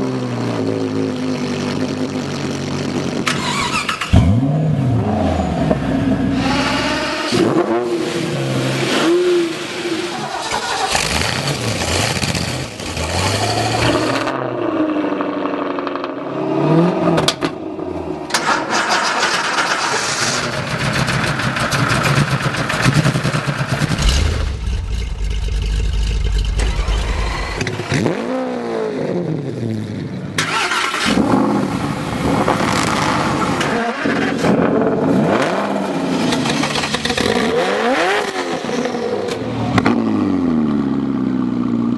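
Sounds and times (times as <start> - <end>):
car engines revving: 0.0 - 41.9.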